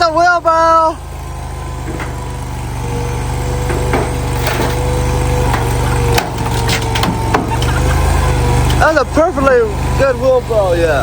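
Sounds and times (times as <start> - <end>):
skid steer engine rumble: 0.0 - 11.0
wood cracking and splintering: 1.8 - 9.0.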